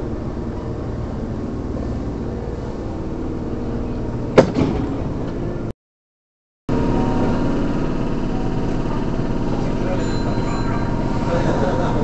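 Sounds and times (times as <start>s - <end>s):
train interior hum: 0.0s - 5.7s.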